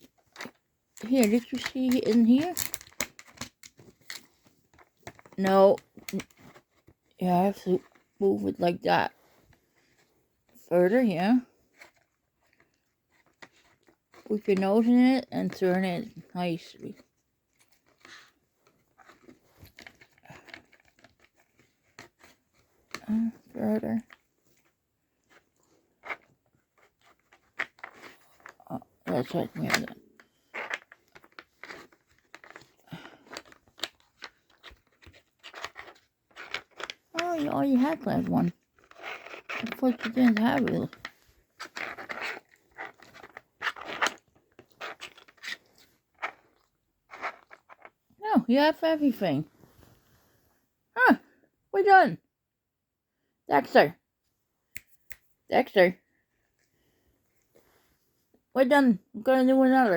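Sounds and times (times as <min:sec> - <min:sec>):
plastic puzzle scrapes and clicks: 0:00.0 - 0:08.2, 0:11.4 - 0:48.0.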